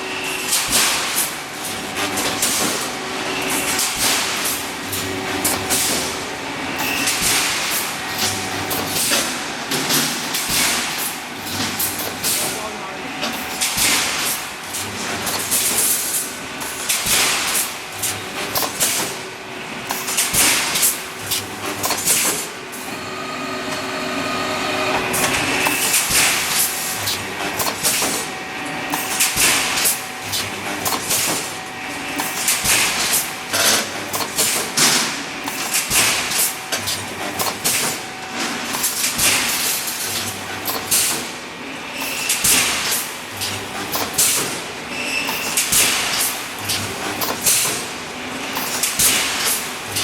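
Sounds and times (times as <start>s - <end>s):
welding machine metallic clanks: 24.9s - 28.2s.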